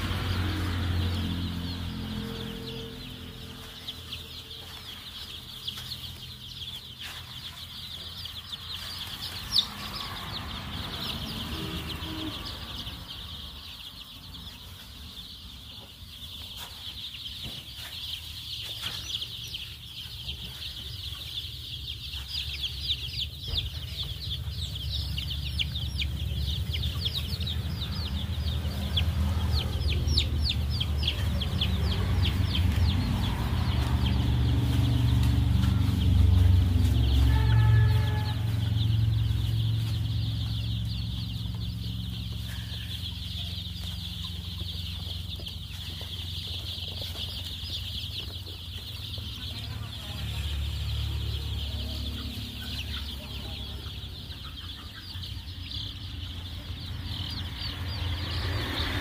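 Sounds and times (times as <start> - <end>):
chicks peeping: 0.0 - 59.0
low rumble: 22.6 - 54.4.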